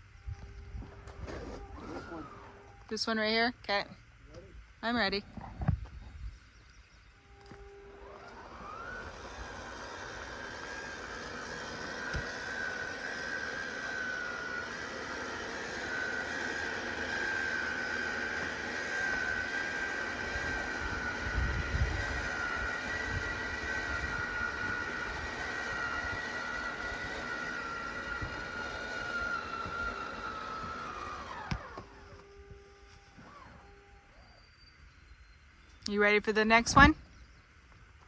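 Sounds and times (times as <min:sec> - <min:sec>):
motor high whine: 0:00.0 - 0:38.0
motor stopping click: 0:06.7 - 0:33.7.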